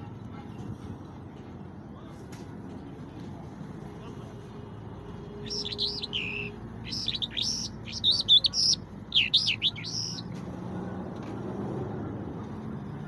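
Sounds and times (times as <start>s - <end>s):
songbird singing: 5.4s - 10.4s.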